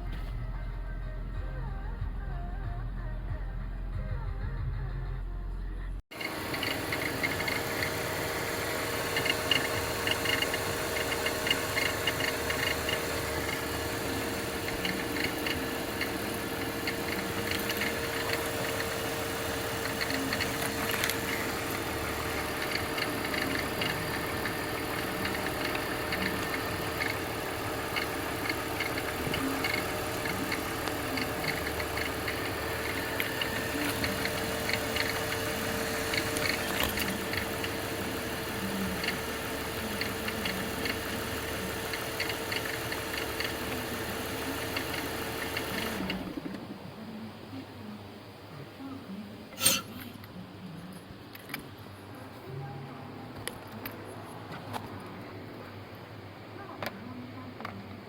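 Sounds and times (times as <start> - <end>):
car engine idling: 6.1 - 45.9
belt tensioner clicking and rattling: 6.1 - 46.2.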